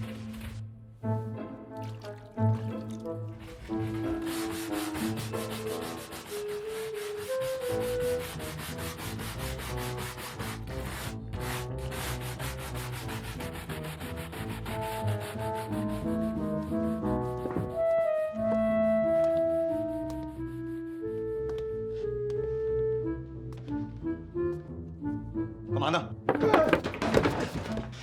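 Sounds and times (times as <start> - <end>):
soft background music: 0.0 - 26.6
brush scrubbing: 1.9 - 18.3, 19.2 - 21.1.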